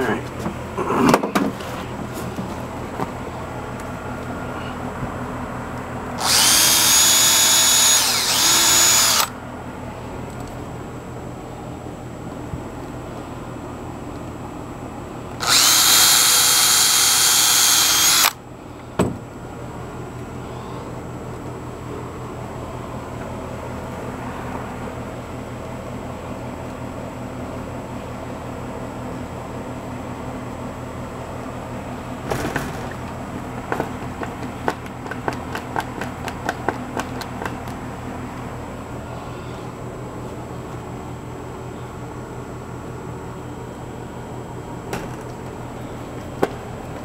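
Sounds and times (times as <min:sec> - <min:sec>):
power drill whining: 0:06.2 - 0:09.3, 0:15.4 - 0:18.4
hand tool clicks and knocks: 0:33.7 - 0:37.8.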